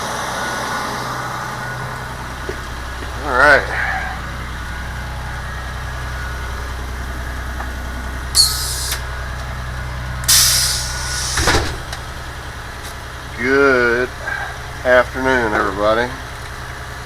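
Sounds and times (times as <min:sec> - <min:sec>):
diesel bus engine idling: 0:00.0 - 0:17.0
air brake hisses: 0:08.4 - 0:09.0, 0:10.3 - 0:11.7.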